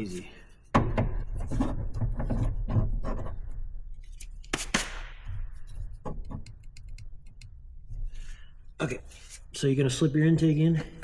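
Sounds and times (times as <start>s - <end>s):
car parts rubbing and clicking: 0.0s - 8.2s.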